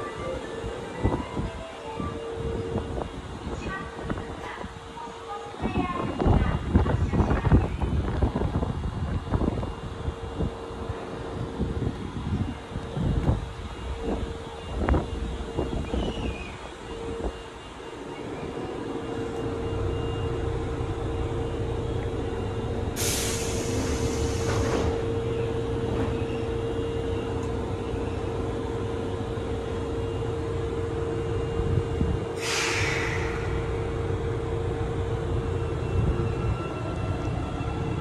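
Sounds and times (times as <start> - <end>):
train car rumble and hum: 0.0 - 38.0
compressed-air hiss: 23.0 - 24.9, 32.4 - 33.8.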